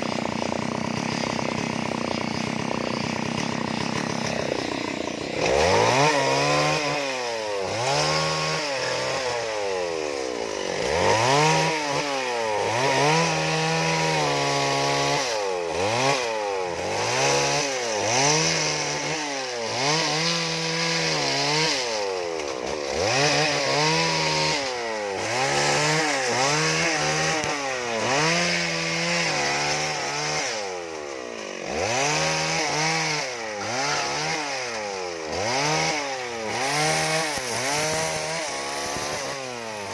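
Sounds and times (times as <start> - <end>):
chainsaw revving while carving wood: 0.0 - 39.9.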